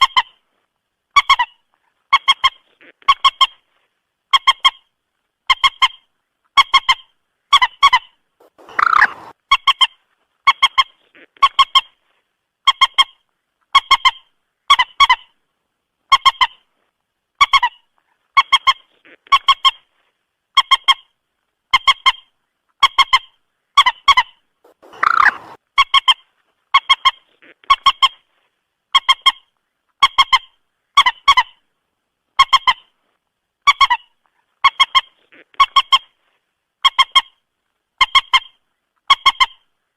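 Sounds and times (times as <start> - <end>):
moorhen clucking call: 6.6 - 12.0, 22.8 - 26.2
harsh moorhen call: 8.4 - 9.4, 23.8 - 25.6.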